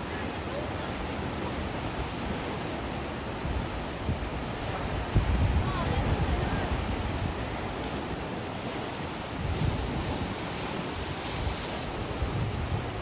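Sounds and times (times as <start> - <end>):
ocean surf washing on beach: 0.0 - 13.0
wind buffeting microphone: 3.2 - 13.0.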